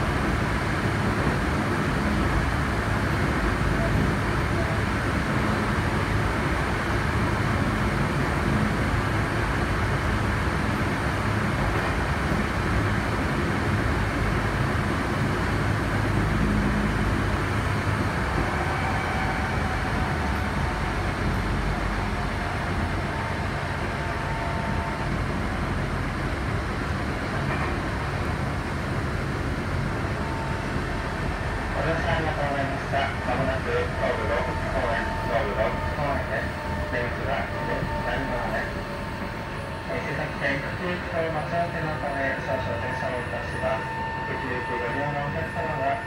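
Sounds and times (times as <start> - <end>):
train wheels rumbling on rail: 0.0 - 46.0
faint whining tones: 32.6 - 46.0.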